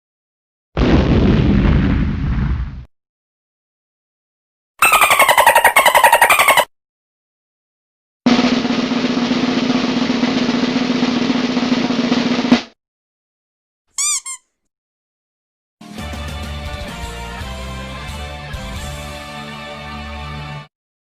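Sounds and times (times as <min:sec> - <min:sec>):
high chirps: 0:04.8 - 0:06.7, 0:14.0 - 0:14.4
music: 0:08.3 - 0:12.8, 0:15.8 - 0:20.7
snare drum roll: 0:08.3 - 0:12.8.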